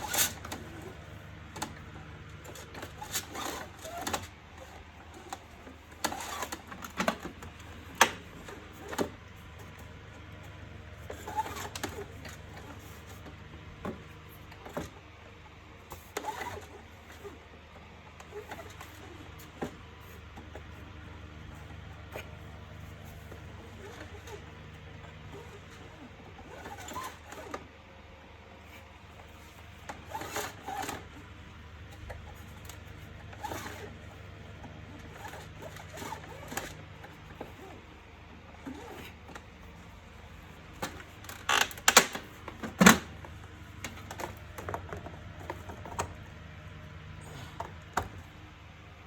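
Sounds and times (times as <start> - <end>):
plastic parts clicking and knocking: 40.8 - 46.2.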